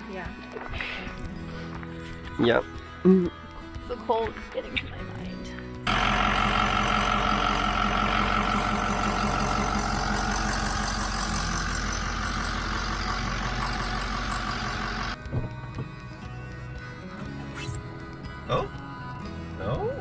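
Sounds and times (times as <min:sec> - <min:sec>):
pickup truck engine idling: 0:05.9 - 0:15.2.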